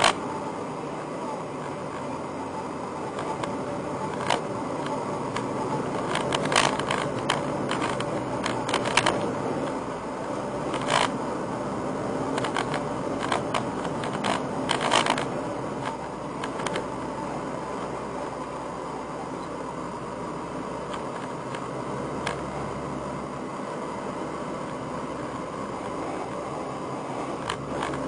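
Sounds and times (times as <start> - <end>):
sharp clicks and ticks: 0.0 - 0.2, 3.1 - 9.8, 10.7 - 11.2, 12.3 - 16.9, 20.9 - 22.5, 27.4 - 28.0
car engine hum and hiss: 0.0 - 28.0.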